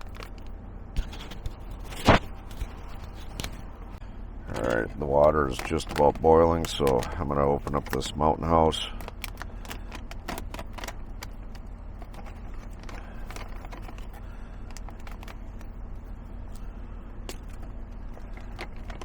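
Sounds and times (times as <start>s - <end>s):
steady low hum: 0.0s - 19.0s
foil pouch crinkling: 4.5s - 15.6s.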